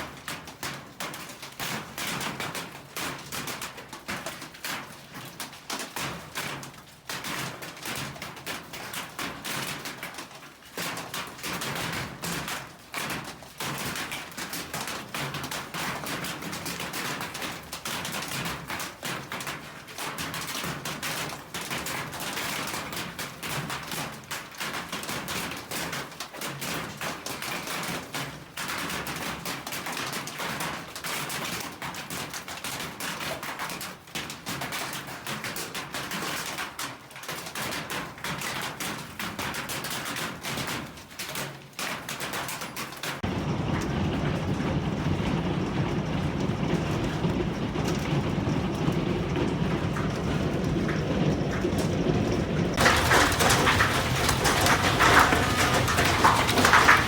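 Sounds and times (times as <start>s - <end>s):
hailstones clattering: 42.6s - 57.0s
heavy rain rushing: 43.2s - 57.0s.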